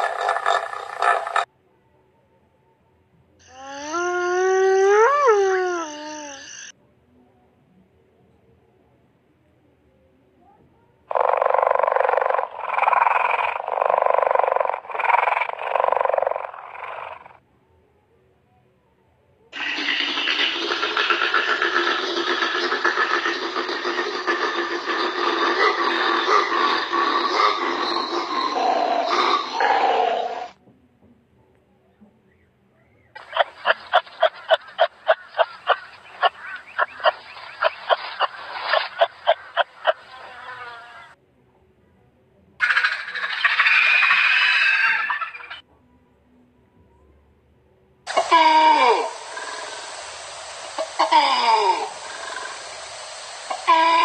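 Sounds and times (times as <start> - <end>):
kangaroo calling: 3.4 - 6.7, 22.8 - 30.6, 33.2 - 41.2, 42.6 - 45.6
cheetah purring: 11.1 - 17.4, 19.6 - 30.5, 50.8 - 52.8.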